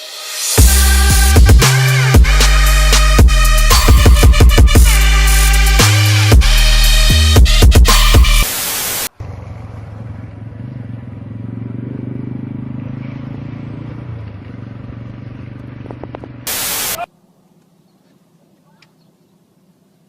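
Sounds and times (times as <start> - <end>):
static-like hiss burst: 8.3 - 9.1, 16.5 - 17.1.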